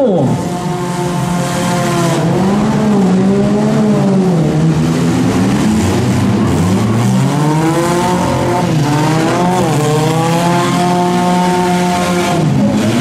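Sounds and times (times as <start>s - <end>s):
car engines revving hard: 0.0s - 13.0s.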